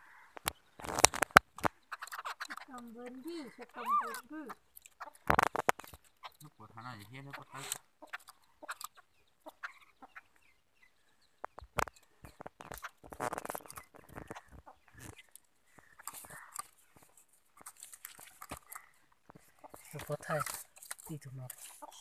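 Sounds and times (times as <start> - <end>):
birds clucking calls: 0.0 - 22.0.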